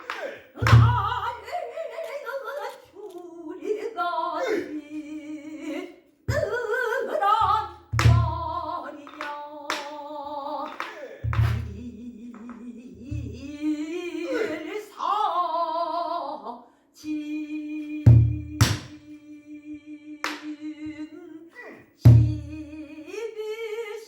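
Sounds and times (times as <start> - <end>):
person singing with vibrato: 0.0 - 24.0.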